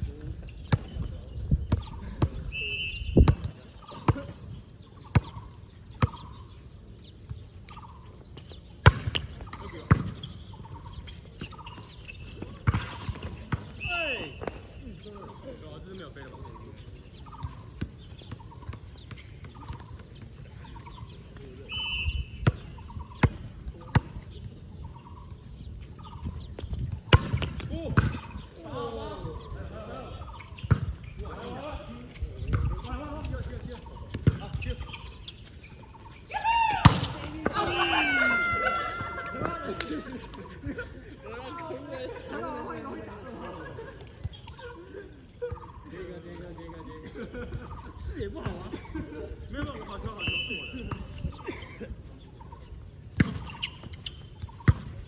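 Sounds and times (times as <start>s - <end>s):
sneakers squeaking: 0.0s - 55.0s
ball bouncing on court: 0.6s - 2.4s, 3.1s - 4.4s, 5.0s - 6.4s, 7.3s - 14.8s, 17.3s - 21.0s, 22.3s - 25.0s, 26.1s - 28.4s, 30.3s - 31.1s, 32.4s - 40.6s, 48.4s - 48.7s, 53.1s - 55.0s
whistle blowing: 2.5s - 3.3s, 13.8s - 14.6s, 21.7s - 22.4s, 37.6s - 39.0s, 50.2s - 50.9s
ball impacts: 8.8s - 10.3s, 12.4s - 14.7s, 26.8s - 28.4s, 32.5s - 35.0s, 36.7s - 40.4s, 53.2s - 55.0s.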